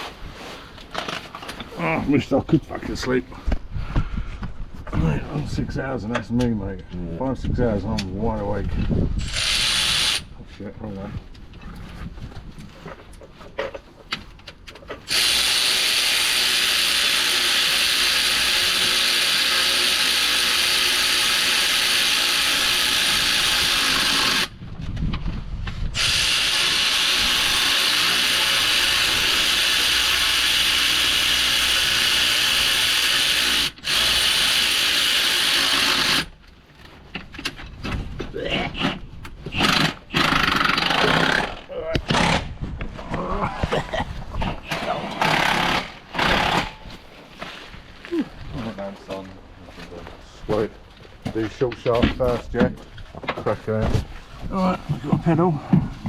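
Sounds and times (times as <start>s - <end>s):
cordless power tool running: 15.1s - 24.5s, 26.0s - 36.3s, 39.5s - 42.4s, 44.7s - 46.8s.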